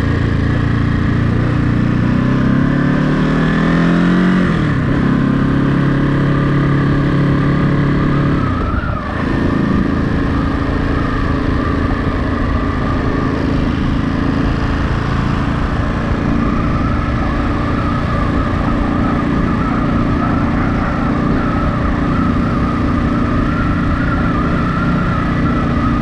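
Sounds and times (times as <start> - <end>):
motorcycle engine running: 0.0 - 26.0
high-pitched wavering tone: 15.8 - 26.0.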